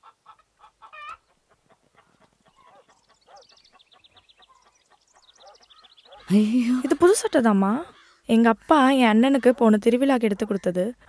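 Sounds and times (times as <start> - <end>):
faint bird chirps: 2.0 - 7.2.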